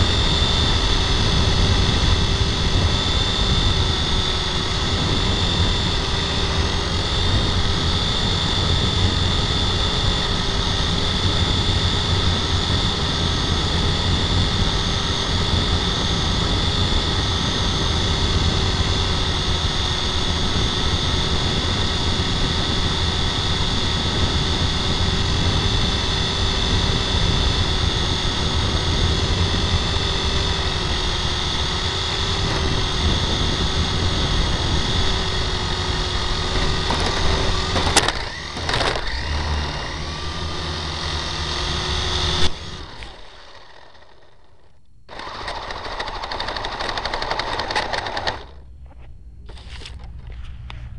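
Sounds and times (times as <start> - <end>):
toy helicopter motor whine: 0.0 - 50.9
low rumble: 48.4 - 50.9.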